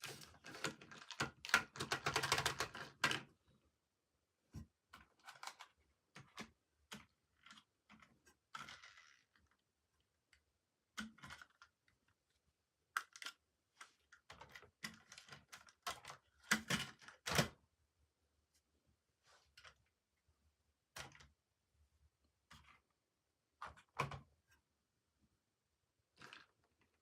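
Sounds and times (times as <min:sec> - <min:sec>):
plastic toys clicking and tapping: 0:00.0 - 0:03.3, 0:04.9 - 0:09.6, 0:10.9 - 0:12.0, 0:12.9 - 0:17.6.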